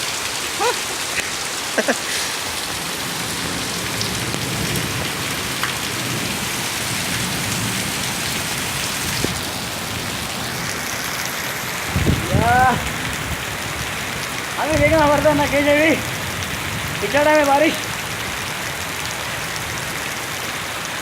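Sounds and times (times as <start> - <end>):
heavy rain: 0.0 - 21.0.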